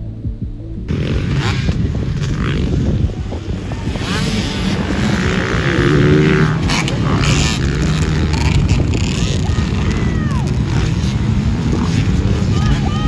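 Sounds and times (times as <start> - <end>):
wind noise on microphone: 0.8 - 13.0
dirt bike engine revving: 0.9 - 13.0.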